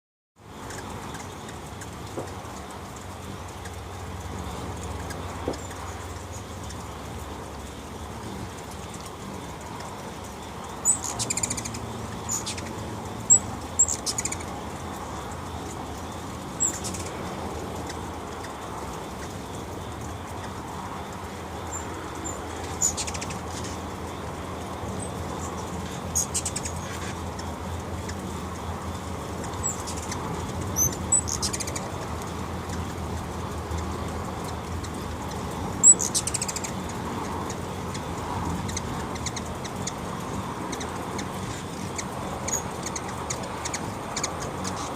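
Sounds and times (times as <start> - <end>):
hummingbird wings humming: 0.4 - 44.9
high bird chips and squeaks: 8.8 - 17.2, 21.7 - 24.0, 24.9 - 32.9, 33.6 - 44.9.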